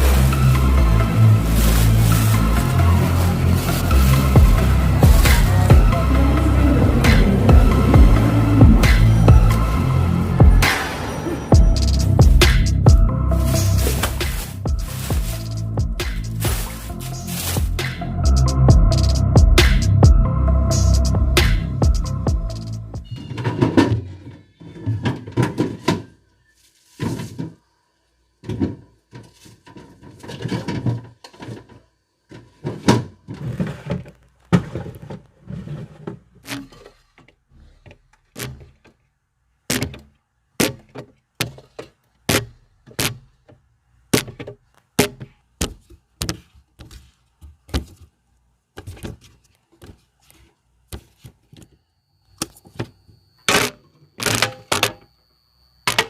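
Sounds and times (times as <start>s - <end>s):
packaging rustling: 1.0s - 4.2s, 13.4s - 17.9s
items clacking down in refrigerator: 23.0s - 26.4s, 28.4s - 51.8s.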